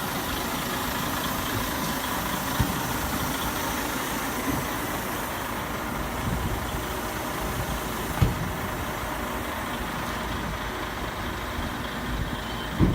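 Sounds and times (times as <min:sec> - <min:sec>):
heavy vehicle engine idling: 0:00.0 - 0:12.9
short thump: 0:08.2 - 0:08.5.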